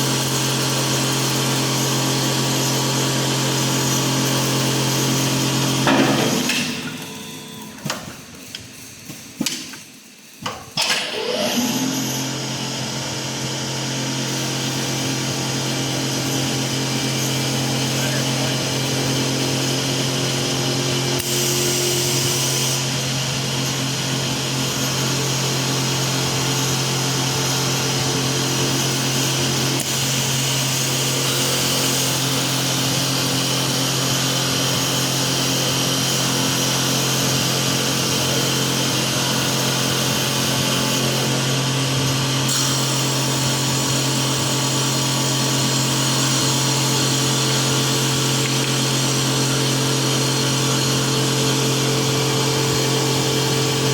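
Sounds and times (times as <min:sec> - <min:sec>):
wood lathe motor hum: 0:11.2 - 0:53.9
bright hiss of lathe cutting: 0:14.4 - 0:53.9.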